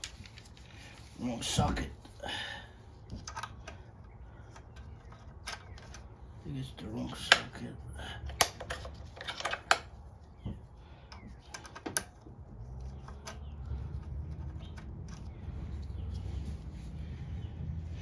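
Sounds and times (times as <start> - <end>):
metal clicks of hand tools: 8.2 - 9.9.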